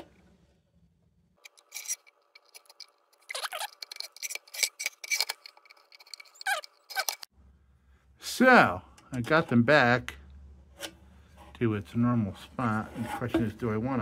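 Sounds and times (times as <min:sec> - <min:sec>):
metal clicks and scrapes: 0:01.4 - 0:07.3
short falling squeaks: 0:01.7 - 0:07.3.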